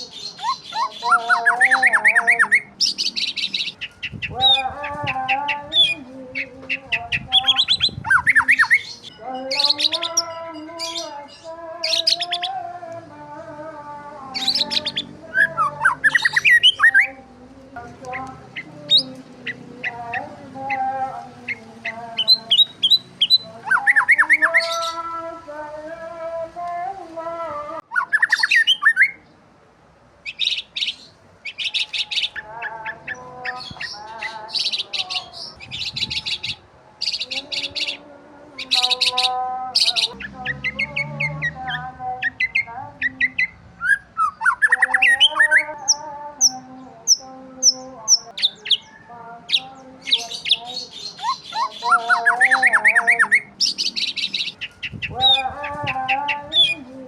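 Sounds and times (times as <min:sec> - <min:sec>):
birds chirping: 0:00.0 - 0:27.0, 0:27.8 - 0:29.5, 0:30.2 - 0:57.0
whistled bird calls: 0:27.9 - 0:29.2, 0:42.2 - 0:45.7.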